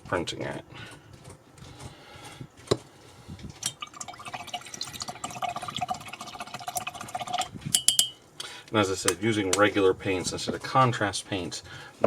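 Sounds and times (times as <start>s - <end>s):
water splashing in a pot: 3.6s - 7.5s.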